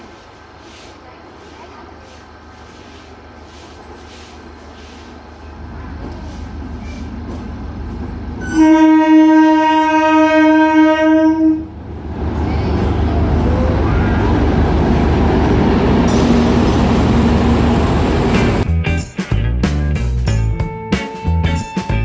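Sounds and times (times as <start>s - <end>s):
train rumbling on tracks: 0.0s - 18.7s
train horn blast: 8.4s - 11.8s.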